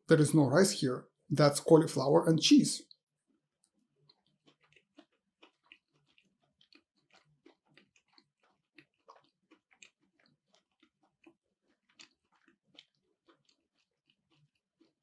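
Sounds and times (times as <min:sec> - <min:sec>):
close chewing: 0:03.6 - 0:15.0
wet mouth clicks and smacks: 0:03.6 - 0:15.0.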